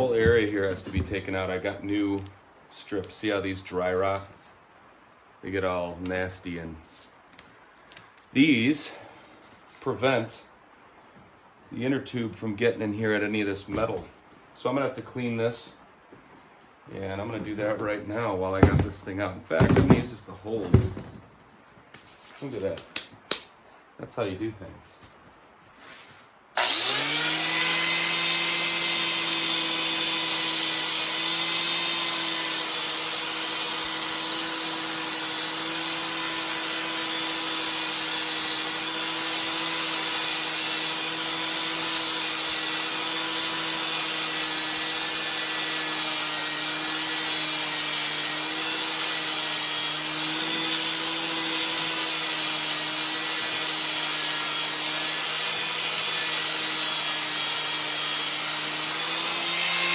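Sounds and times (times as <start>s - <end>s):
power tool scrubbing rust: 26.6s - 59.9s.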